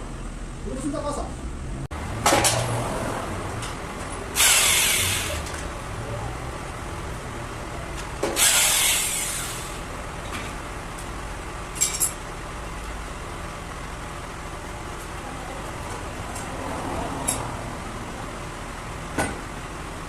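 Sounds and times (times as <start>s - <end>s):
loud hiss: 4.3s - 5.5s, 8.3s - 9.9s.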